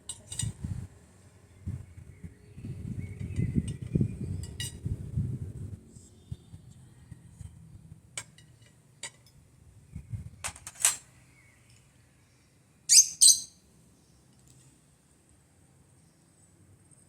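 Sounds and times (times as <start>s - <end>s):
bird chirping loudly: 12.9s - 13.6s.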